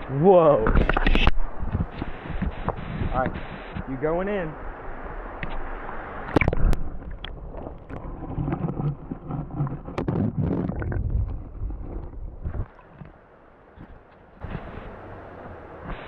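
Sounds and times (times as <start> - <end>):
wind buffeting microphone: 0.0 - 4.0, 4.6 - 13.2
microphone handling knocks: 7.9 - 13.1.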